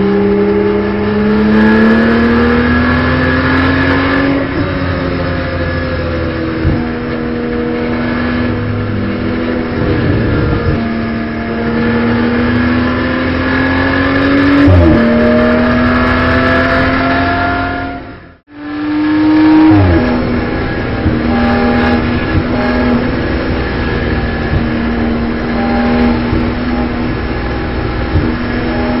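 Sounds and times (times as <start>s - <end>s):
car engine accelerating hard: 0.0s - 29.0s.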